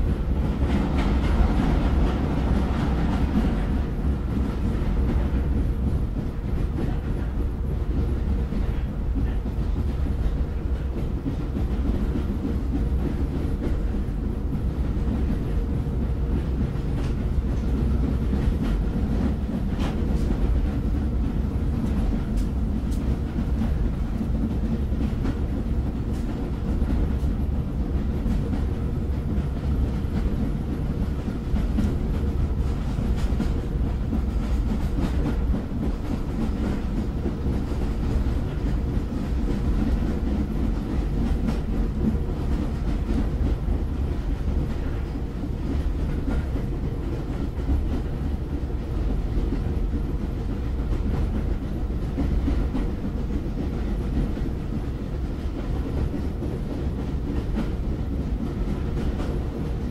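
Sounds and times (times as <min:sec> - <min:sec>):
train rumbling on rails: 0:00.0 - 0:59.9.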